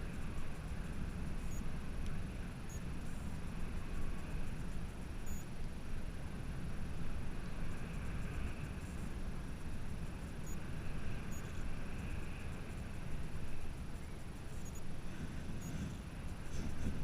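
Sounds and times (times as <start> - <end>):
wind buffeting microphone: 6.3 - 17.0.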